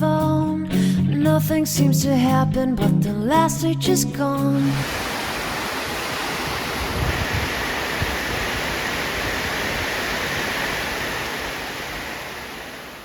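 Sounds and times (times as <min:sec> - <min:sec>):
heavy rain falling: 0:04.6 - 0:13.0.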